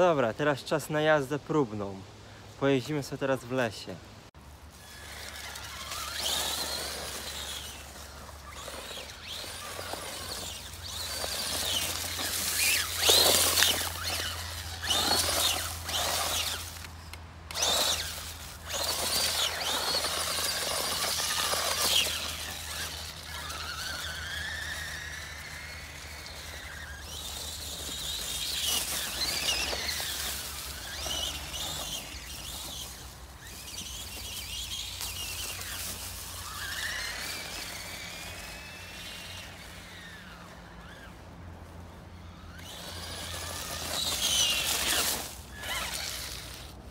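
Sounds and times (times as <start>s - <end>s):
tyres on forest ground: 0.0s - 46.9s
toy truck motor whine: 4.6s - 46.9s.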